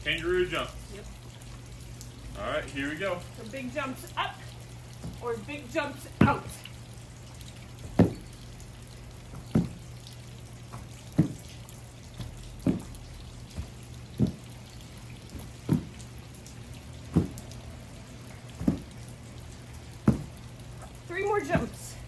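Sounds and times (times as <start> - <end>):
steady low hum: 0.0 - 22.0
feet thudding on floor: 5.0 - 5.3, 6.2 - 6.6, 7.8 - 8.3, 9.3 - 9.8, 10.7 - 11.6, 12.2 - 14.5, 15.3 - 16.0, 17.1 - 17.5, 18.6 - 19.0, 20.0 - 21.9.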